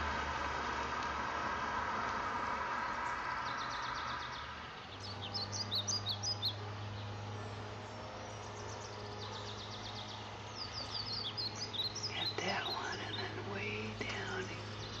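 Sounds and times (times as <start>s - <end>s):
steady low hum: 0.0s - 15.0s
small bird chirping: 2.7s - 6.6s, 8.6s - 15.0s.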